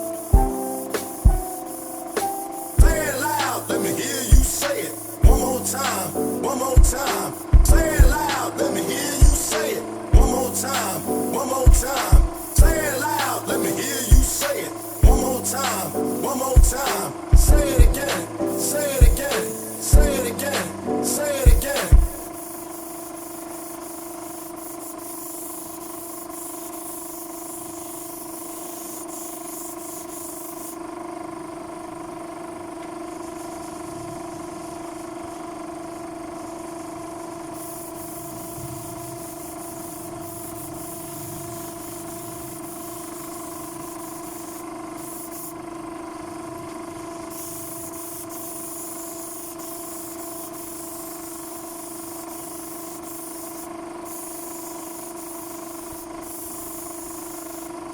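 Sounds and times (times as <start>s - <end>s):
motor humming: 0.0s - 22.4s
spray gun hissing: 0.0s - 30.9s, 33.0s - 46.0s, 47.1s - 57.9s.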